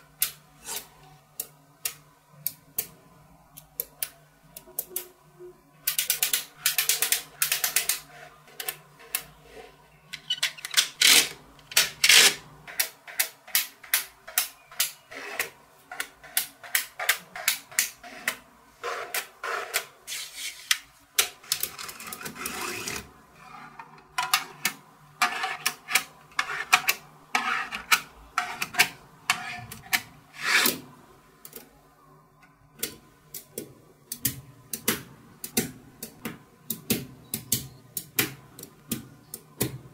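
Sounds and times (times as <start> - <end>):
paper sliding scrape: 18.1 - 20.8, 21.8 - 23.8, 30.3 - 30.8
magnetic balls clicking: 32.8 - 39.8.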